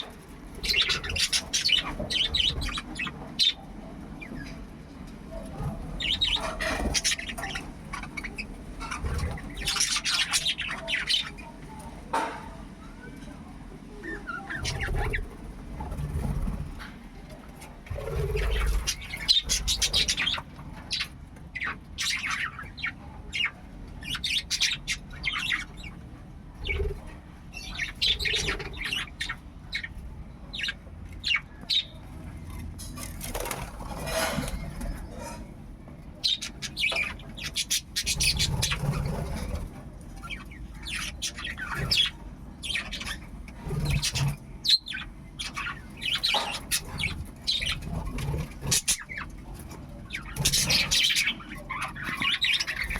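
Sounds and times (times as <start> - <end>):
budgerigars chirping: 0.0 - 3.6, 6.0 - 11.5, 18.0 - 26.0, 26.6 - 32.0, 36.2 - 39.6, 40.2 - 52.9.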